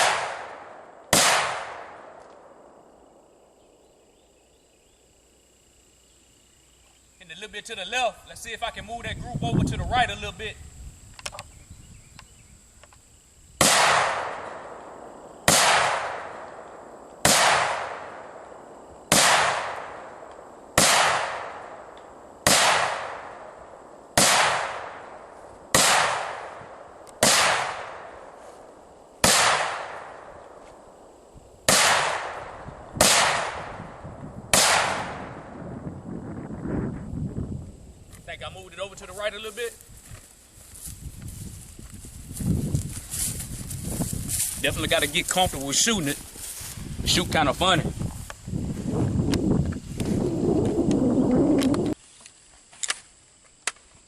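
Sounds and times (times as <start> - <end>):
rifle shots with echo: 0.0 - 2.8, 13.6 - 28.4, 29.2 - 30.4, 31.7 - 35.5.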